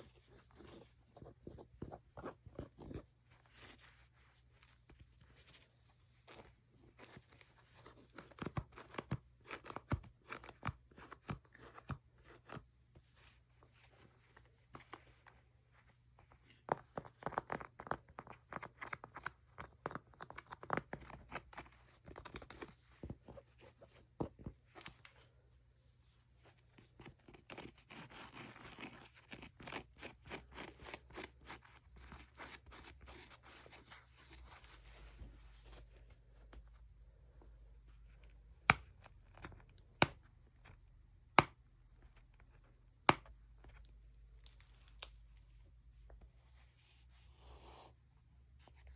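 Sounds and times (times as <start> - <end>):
scratching and rubbing: 25.9 - 36.6.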